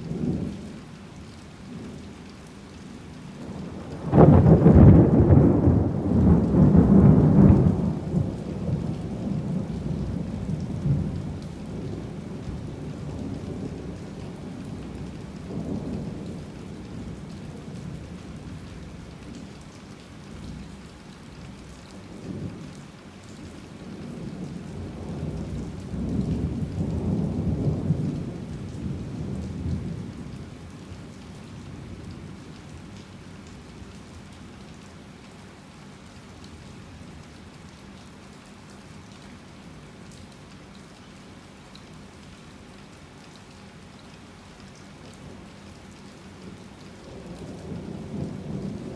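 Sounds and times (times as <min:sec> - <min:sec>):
heavy rain falling: 0:00.0 - 0:48.9
rolling thunder: 0:03.5 - 0:13.9, 0:24.8 - 0:30.3.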